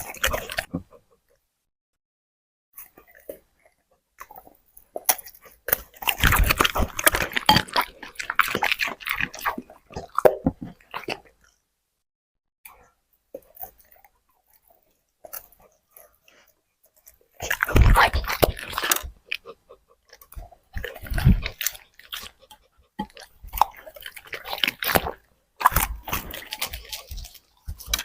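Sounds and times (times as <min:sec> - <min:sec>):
dog chewing crunchy food: 0:00.0 - 0:01.0, 0:02.8 - 0:11.6, 0:13.3 - 0:28.0.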